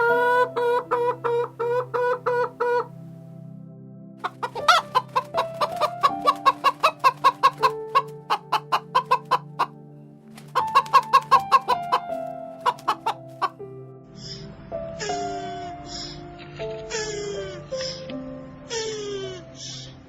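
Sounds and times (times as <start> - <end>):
soft background music: 0.0 - 20.0
chickens clucking: 4.2 - 13.6.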